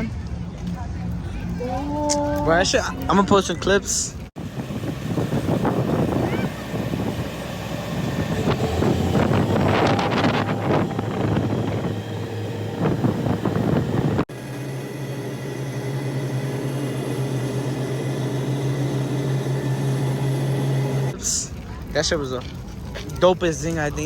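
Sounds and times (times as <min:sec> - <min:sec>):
busy outdoor noise: 0:00.0 - 0:24.0
low motor drone: 0:04.2 - 0:21.6
wind on microphone: 0:04.4 - 0:14.3.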